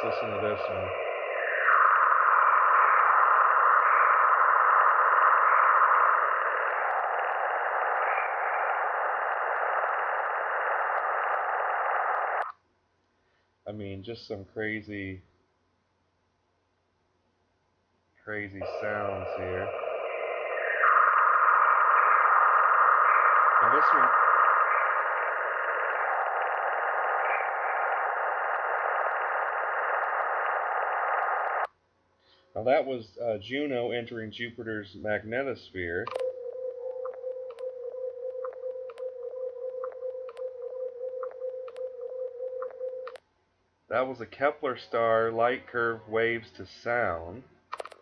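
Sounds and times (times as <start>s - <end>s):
faint held tones: 0.0s - 12.5s, 18.3s - 31.7s, 35.9s - 43.2s
static-like hiss: 0.0s - 48.0s.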